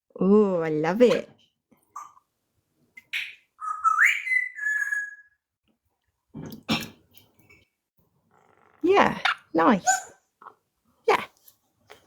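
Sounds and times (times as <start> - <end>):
parrot whistling: 3.2 - 5.4.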